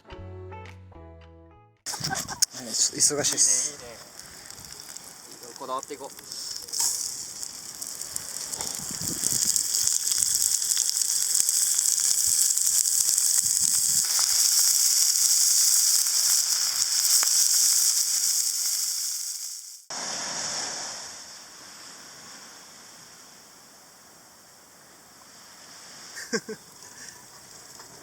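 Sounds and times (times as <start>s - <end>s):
food sizzling in a pan: 1.9s - 21.8s, 25.6s - 27.8s.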